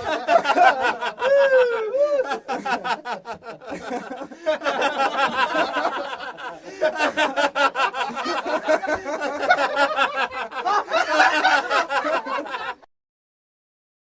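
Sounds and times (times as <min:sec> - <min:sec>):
people laughing: 0:00.0 - 0:12.9.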